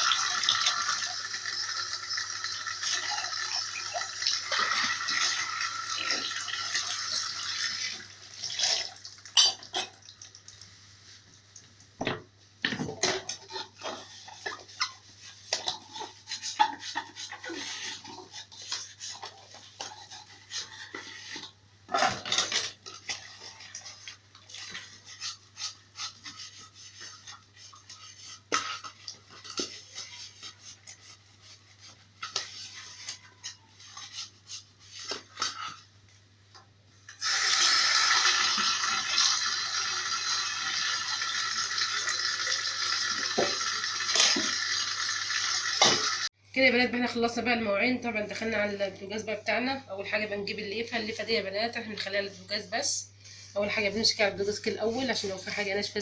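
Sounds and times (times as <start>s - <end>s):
dishes and cutlery clinking: 9.4s - 10.0s.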